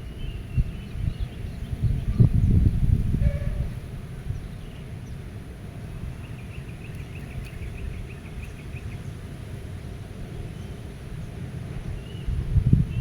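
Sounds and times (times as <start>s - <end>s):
low steady wind: 0.0s - 13.0s.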